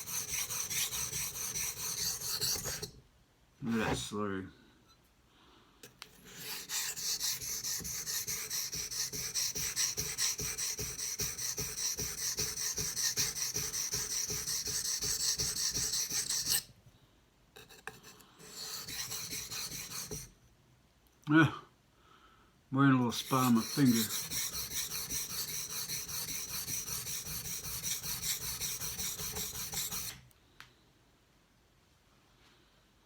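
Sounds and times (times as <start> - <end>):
knife stroking on whetstone: 0.0 - 2.9, 6.0 - 16.6, 17.6 - 20.3, 23.1 - 30.2.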